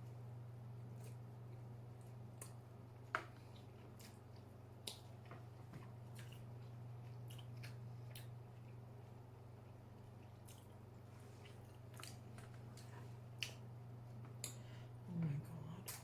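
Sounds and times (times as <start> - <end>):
low steady hum: 0.0 - 16.0
wet chewing: 3.3 - 13.7.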